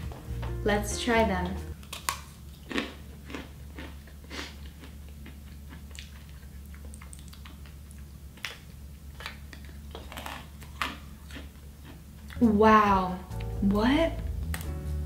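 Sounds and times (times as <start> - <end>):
person chewing crisp meringue: 1.8 - 12.4.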